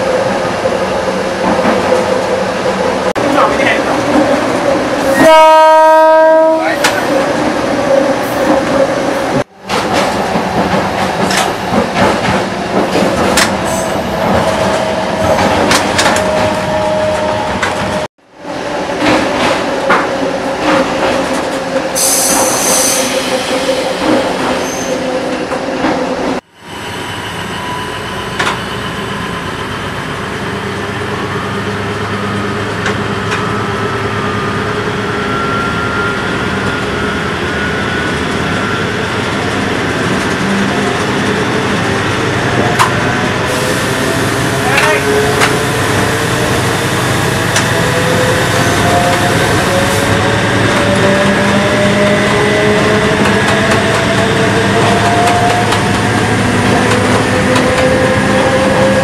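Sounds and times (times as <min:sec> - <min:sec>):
train wheels rattling over track: 0:06.6 - 0:18.1, 0:37.7 - 0:59.0.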